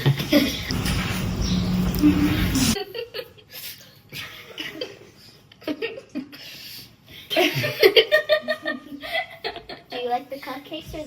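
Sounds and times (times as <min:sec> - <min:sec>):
people chuckling and laughing softly: 0:02.0 - 0:09.9.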